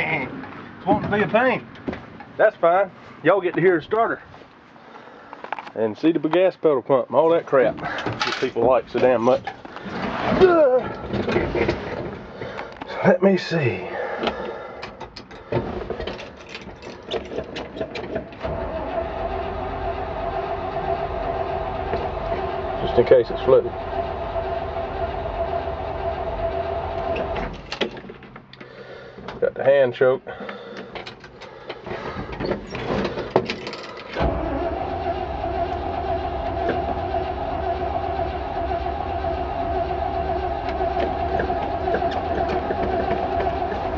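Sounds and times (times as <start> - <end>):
starter cranking engine: 14.2 - 28.8, 30.4 - 43.9.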